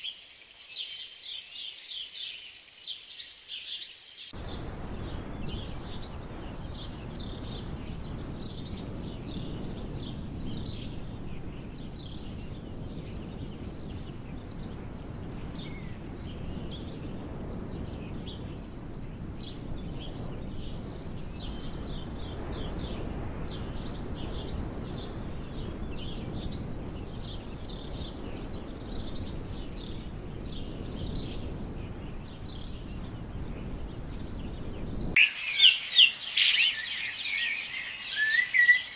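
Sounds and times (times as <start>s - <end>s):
birds chirping and calling: 35.2s - 38.9s.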